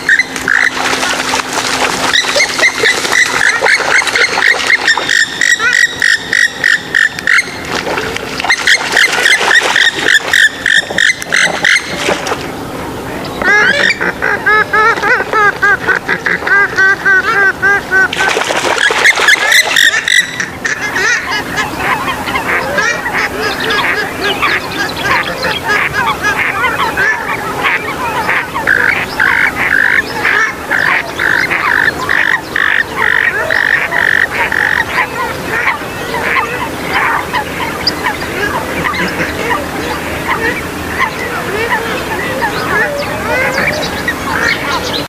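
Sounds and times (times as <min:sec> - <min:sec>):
nasal bird calls: 0:00.0 - 0:12.4, 0:13.2 - 0:45.0
harsh bird calls: 0:13.2 - 0:45.0.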